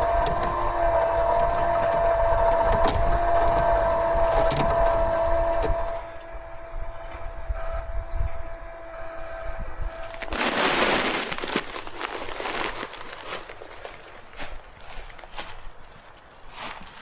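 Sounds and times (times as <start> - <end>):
small motor whining: 0.0 - 10.6
background noise: 0.0 - 17.0.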